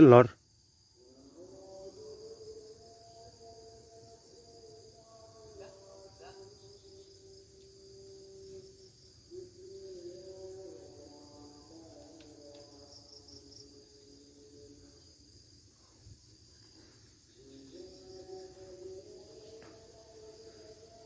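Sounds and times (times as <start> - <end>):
insects chirping: 0.0 - 21.0.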